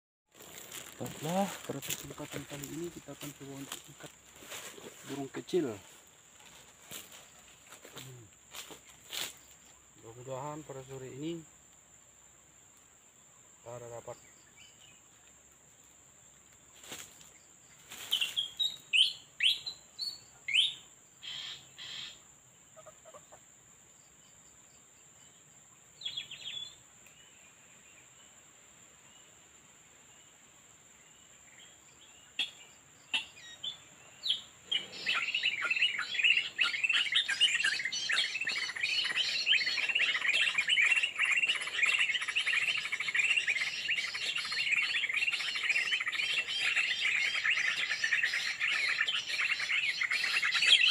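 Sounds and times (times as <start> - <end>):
small birds chirping: 0.3 - 11.5, 16.3 - 22.2, 25.1 - 28.4, 31.0 - 50.9
dense bird chatter: 0.4 - 11.5, 13.6 - 15.2, 31.5 - 50.9.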